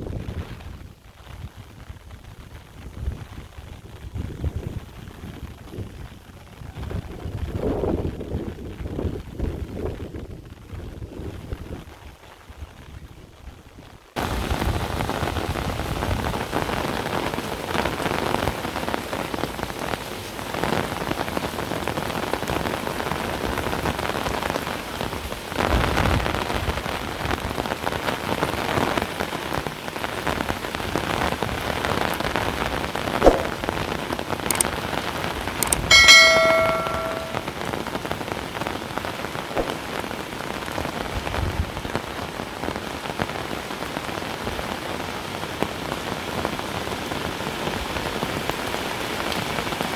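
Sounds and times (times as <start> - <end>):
heavy rain falling: 0.0 - 35.6, 37.4 - 49.9
short ringing tone: 35.6 - 37.4.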